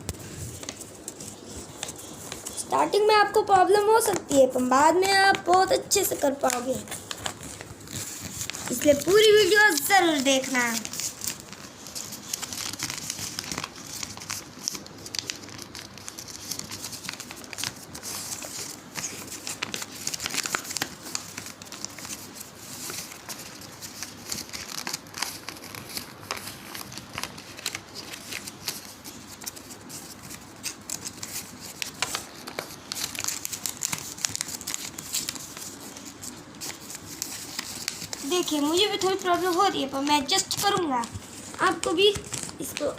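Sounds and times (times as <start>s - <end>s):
paper being folded and crinkling: 0.0s - 42.9s.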